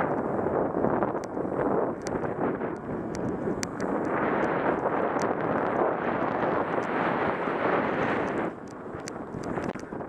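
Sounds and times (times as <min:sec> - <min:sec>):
wind buffeting microphone: 0:00.0 - 0:10.0
faint sharp clicks: 0:02.0 - 0:05.4, 0:08.2 - 0:09.9.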